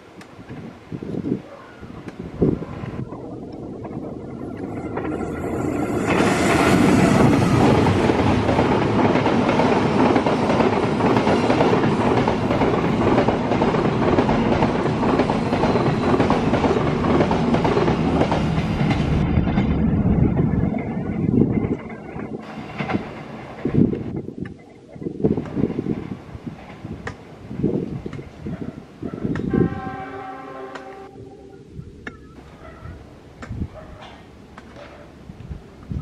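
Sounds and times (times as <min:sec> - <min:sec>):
train passing with wheels on rail: 0:00.0 - 0:36.0
carriages clickety-clack: 0:03.6 - 0:24.2.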